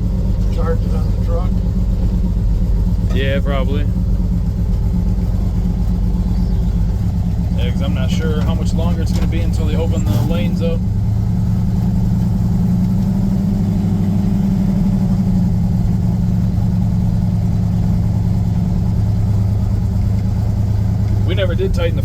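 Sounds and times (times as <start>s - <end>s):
pickup engine idling: 0.0s - 22.0s.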